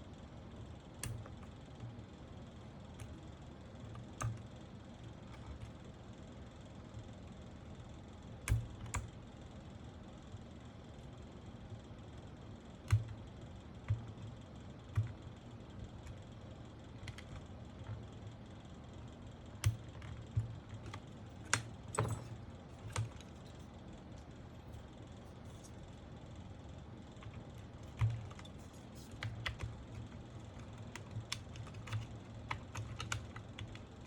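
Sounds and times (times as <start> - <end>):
mechanical keyboard clicks: 1.0 - 1.5, 17.0 - 18.1, 19.6 - 23.4, 27.2 - 33.8.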